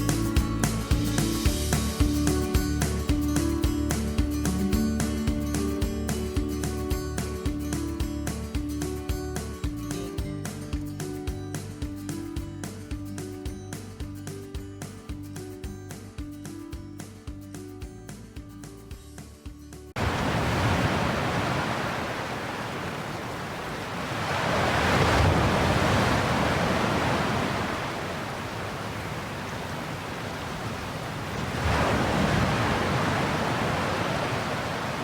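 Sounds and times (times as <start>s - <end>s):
ocean waves washing in: 20.0s - 35.0s.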